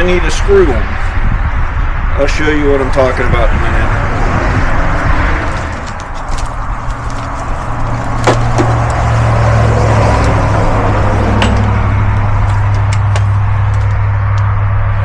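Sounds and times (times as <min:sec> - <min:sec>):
engine running: 0:03.5 - 0:15.0.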